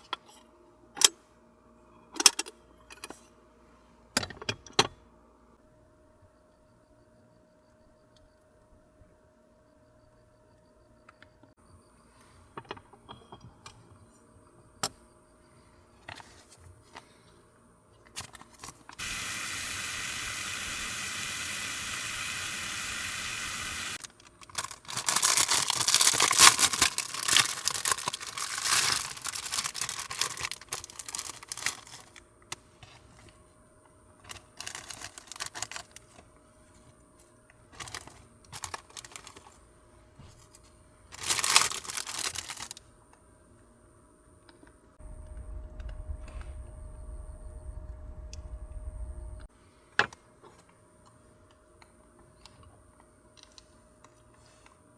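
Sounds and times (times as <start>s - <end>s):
steady hiss: 19.0s - 24.0s
plastic packaging crinkling and tearing: 24.0s - 32.2s, 34.3s - 36.2s, 37.8s - 39.6s, 41.1s - 42.8s.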